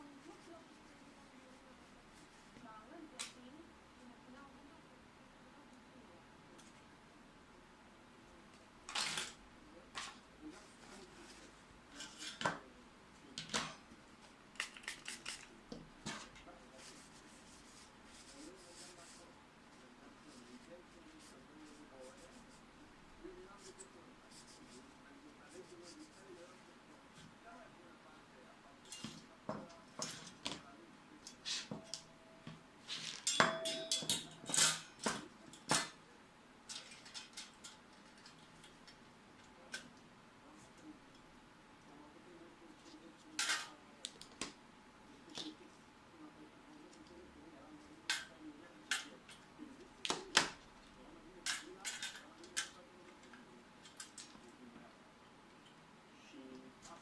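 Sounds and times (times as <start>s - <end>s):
small parts clicking and clinking: 36.7s - 39.0s.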